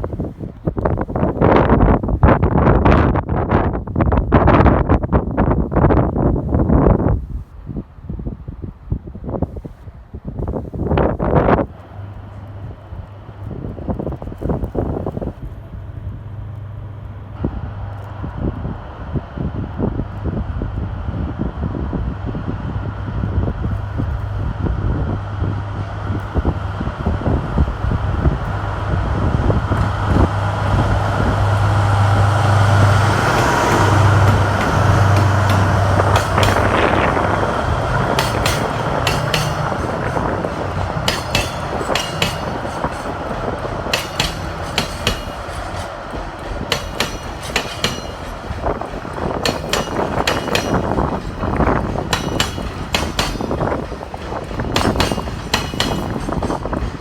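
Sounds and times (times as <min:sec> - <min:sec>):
locomotive low hum: 0:10.4 - 0:57.0
train wheels clattering over rail joints: 0:29.5 - 0:57.0.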